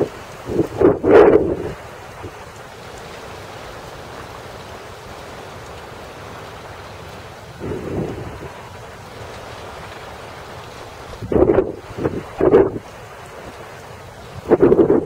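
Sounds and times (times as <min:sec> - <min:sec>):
strong wind on microphone: 0:00.0 - 0:02.4, 0:07.5 - 0:08.7, 0:10.9 - 0:13.6, 0:14.2 - 0:15.0.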